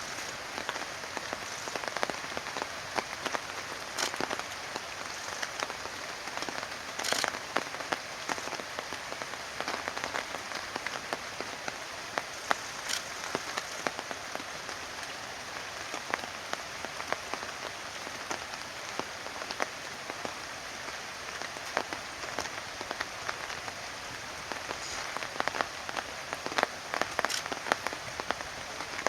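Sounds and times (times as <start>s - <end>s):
rain falling on a surface: 0.0s - 29.0s.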